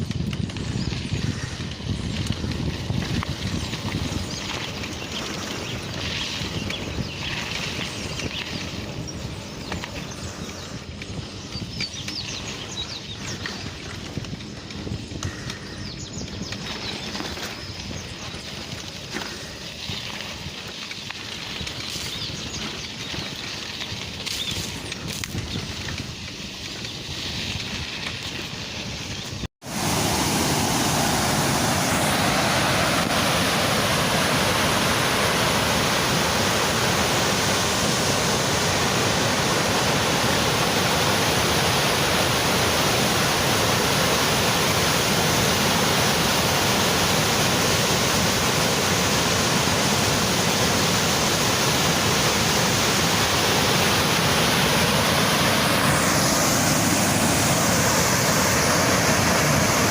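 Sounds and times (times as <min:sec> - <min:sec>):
waterfall roaring: 0:29.6 - 0:59.9.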